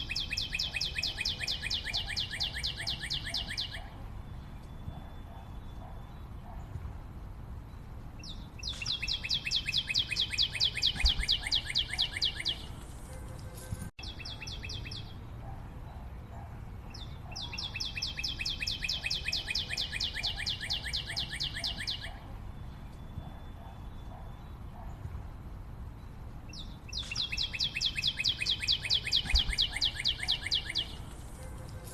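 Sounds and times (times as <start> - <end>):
songbird trilling: 0.0 - 4.0, 8.2 - 12.8, 14.0 - 15.2, 16.9 - 22.2, 26.5 - 31.1.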